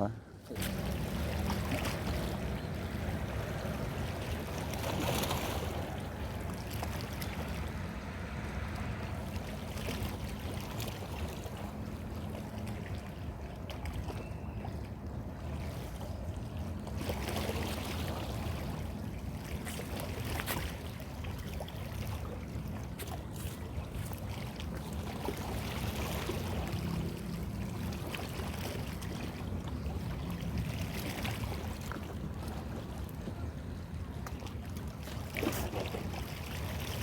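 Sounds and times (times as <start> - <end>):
water wash: 0.6 - 13.4
low motor hum: 0.6 - 13.6.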